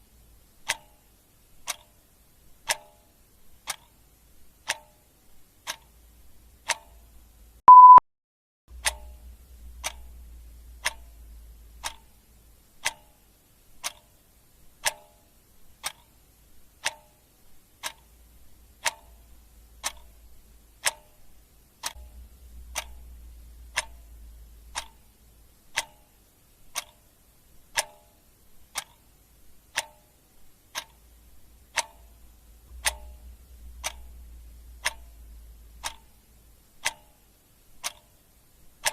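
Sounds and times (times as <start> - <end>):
clock ticking: 0.5 - 8.0, 8.7 - 38.9
short high beep: 7.7 - 8.0.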